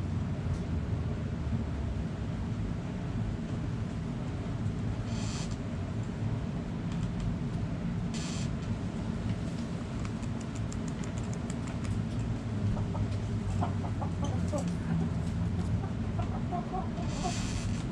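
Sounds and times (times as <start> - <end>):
chicken clucking: 12.8 - 17.5.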